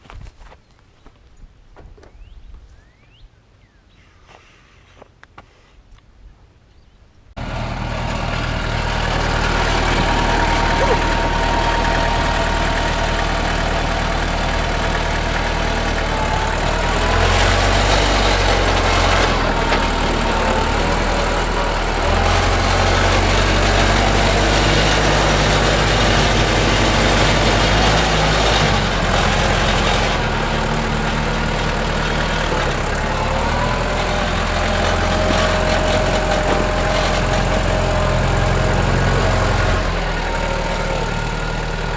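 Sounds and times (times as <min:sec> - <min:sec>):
tractor diesel engine running: 0:07.4 - 0:41.9.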